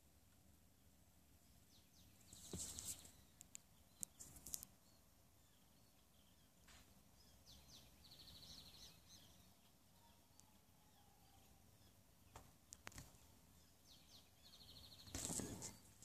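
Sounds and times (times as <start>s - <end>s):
faint bird calls: 1.7s - 16.0s.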